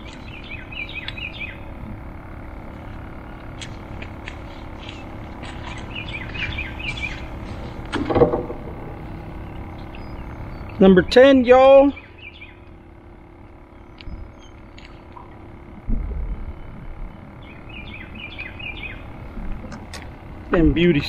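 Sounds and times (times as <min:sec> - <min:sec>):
songbird warbling: 0:00.0 - 0:01.8, 0:04.6 - 0:11.2, 0:11.9 - 0:12.7, 0:17.3 - 0:19.2
outdoor background noise: 0:00.0 - 0:21.0
sharp clicks: 0:13.9 - 0:15.4.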